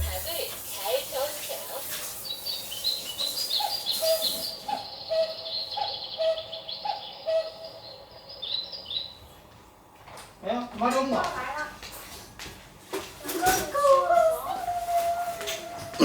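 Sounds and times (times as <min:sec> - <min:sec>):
bird low repeated notes: 0:00.0 - 0:00.4
bird high chirps: 0:01.8 - 0:09.3.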